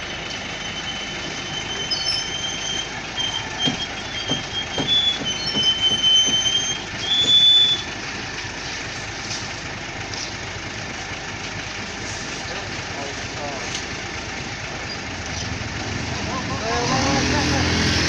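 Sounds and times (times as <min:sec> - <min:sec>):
high squeal: 0:00.0 - 0:08.0
concrete mixer truck running: 0:00.0 - 0:18.0
knocks: 0:03.6 - 0:07.4.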